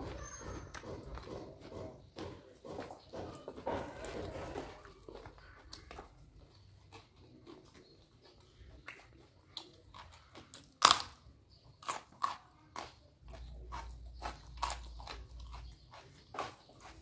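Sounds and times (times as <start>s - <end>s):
person crunching raw vegetables: 3.8s - 17.0s.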